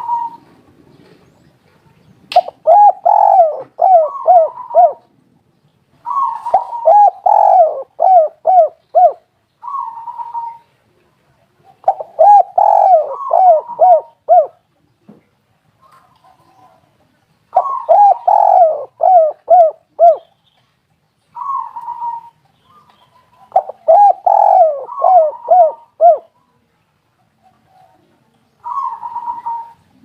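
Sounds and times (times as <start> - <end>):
dove cooing: 0.0 - 1.3, 2.4 - 5.1, 6.0 - 10.7, 11.6 - 14.6, 15.8 - 20.3, 21.4 - 26.4, 27.3 - 30.0.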